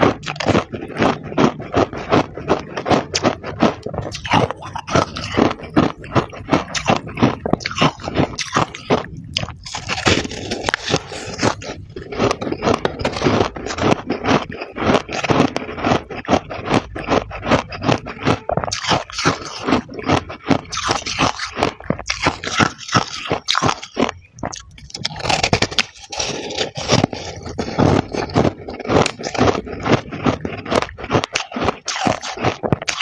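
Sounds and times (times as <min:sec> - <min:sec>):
frost crunching and scraping: 0:00.0 - 0:33.0.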